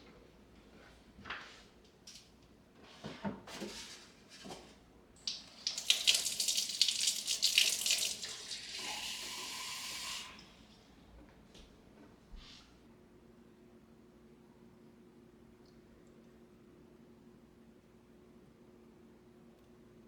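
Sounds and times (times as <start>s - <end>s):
water splashing from tap: 5.2s - 10.4s.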